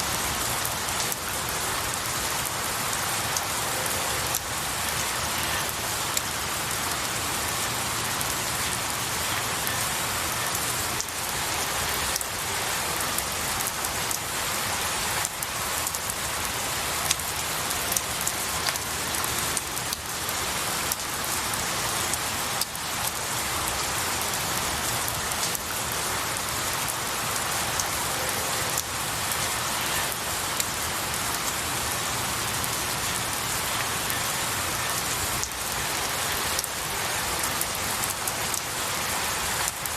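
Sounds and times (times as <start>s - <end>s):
rain falling on pine needles: 0.0s - 39.9s
raindrops ticking: 0.1s - 39.9s.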